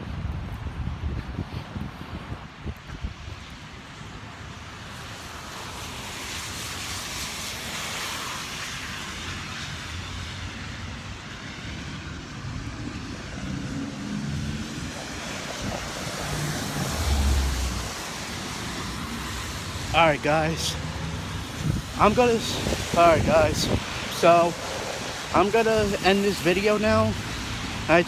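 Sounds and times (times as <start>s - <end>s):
low engine hum of traffic: 3.9s - 28.0s
tyre hiss on wet road: 4.8s - 11.9s, 14.1s - 28.0s.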